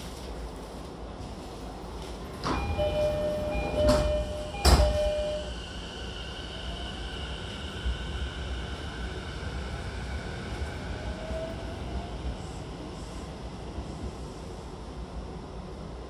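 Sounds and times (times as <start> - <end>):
sliding doors clunking: 2.3 - 5.4
door chime: 2.5 - 5.5.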